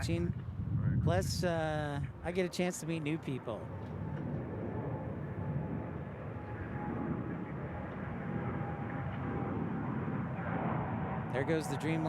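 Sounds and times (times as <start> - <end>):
jet engines rumbling: 0.0 - 12.0
faint thin whine: 3.2 - 12.0.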